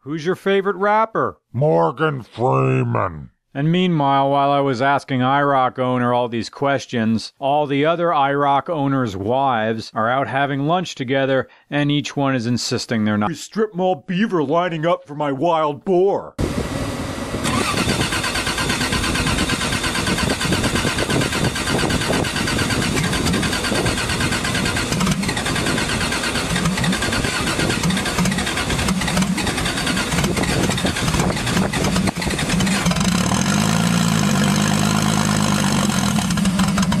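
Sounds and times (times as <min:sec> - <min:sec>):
car engine cranking: 0:17.4 - 0:37.0.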